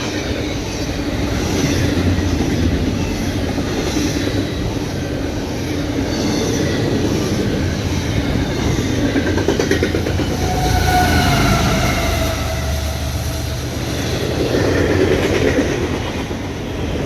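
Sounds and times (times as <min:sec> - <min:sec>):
train wheels rumbling on rails: 0:00.0 - 0:17.0
faint wheel squeal: 0:09.7 - 0:14.8.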